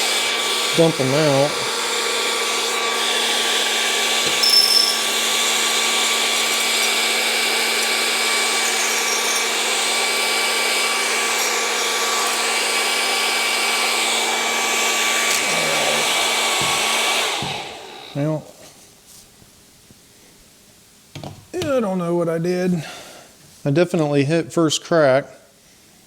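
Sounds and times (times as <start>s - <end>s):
coffee roaster fan humming: 0.0s - 19.2s.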